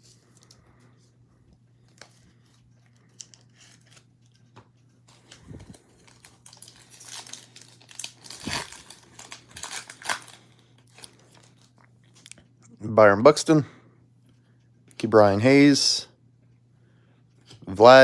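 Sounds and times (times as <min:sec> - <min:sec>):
foil wrapper tearing and crinkling: 0:02.9 - 0:04.4, 0:05.1 - 0:11.8.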